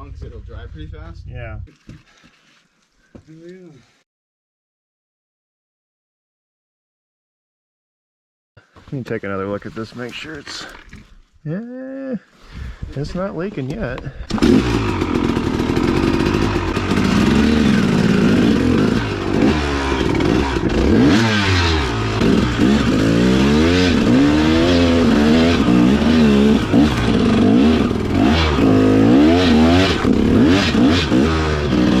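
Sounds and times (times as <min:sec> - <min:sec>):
dirt bike engine revving: 0:14.3 - 0:32.0.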